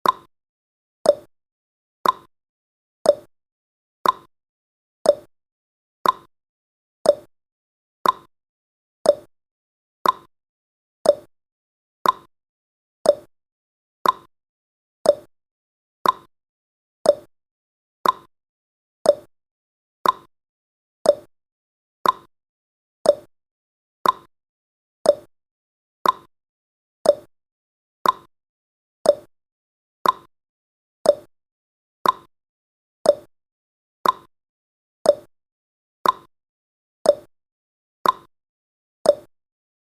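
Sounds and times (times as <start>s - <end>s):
clock tick-tock: 0.0s - 0.3s, 1.0s - 1.3s, 2.0s - 2.3s, 3.0s - 3.3s, 4.0s - 4.3s, 5.0s - 5.3s, 6.0s - 6.3s, 7.0s - 7.3s, 8.0s - 8.3s, 9.0s - 9.3s, 10.0s - 10.3s, 11.0s - 11.3s, 12.0s - 12.3s, 13.0s - 13.3s, 14.0s - 14.3s, 15.0s - 15.3s, 16.0s - 16.3s, 17.0s - 17.3s, 18.0s - 18.3s, 19.0s - 19.3s, 20.0s - 20.3s, 21.0s - 21.3s, 22.0s - 22.3s, 23.0s - 23.3s, 24.0s - 24.3s, 25.0s - 25.3s, 26.0s - 26.3s, 27.0s - 27.3s, 28.0s - 28.3s, 29.0s - 29.3s, 30.0s - 30.3s, 31.0s - 31.3s, 32.0s - 32.3s, 33.0s - 33.3s, 34.0s - 34.3s, 35.0s - 35.3s, 36.0s - 36.3s, 37.0s - 37.3s, 38.0s - 38.3s, 39.0s - 39.4s.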